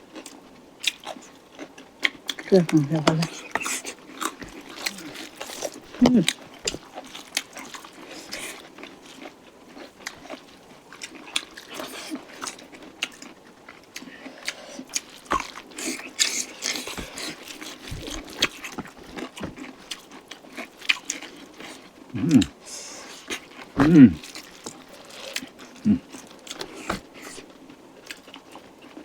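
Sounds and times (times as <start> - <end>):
close-up chewing and mouth smacks: 0.0 - 29.0
person humming: 4.9 - 5.2, 6.0 - 6.3, 22.2 - 22.5, 23.8 - 24.2, 25.8 - 26.1.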